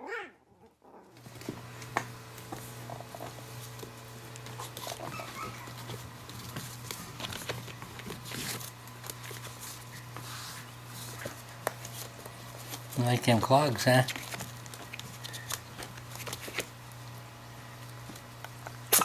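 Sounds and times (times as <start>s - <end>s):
puppy claws clicking on floor: 1.2s - 10.3s, 14.0s - 16.8s
puppy whimpering: 4.6s - 6.1s.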